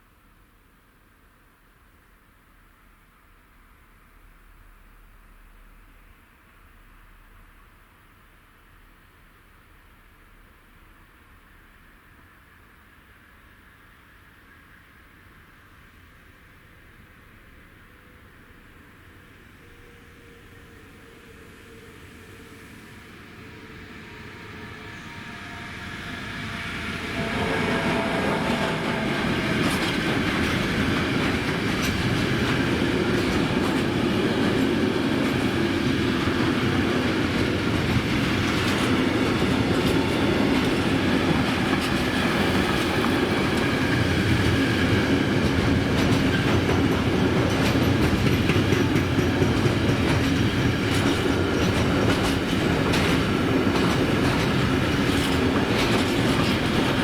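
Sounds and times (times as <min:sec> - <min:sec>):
train wheels clattering over rails: 0:27.0 - 0:57.0.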